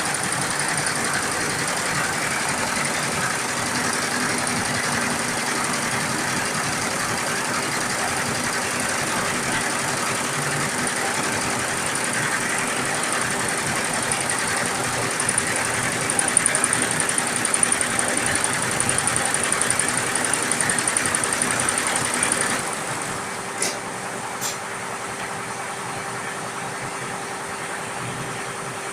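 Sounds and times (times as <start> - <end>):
embroidery machine stitching: 0.0 - 22.9.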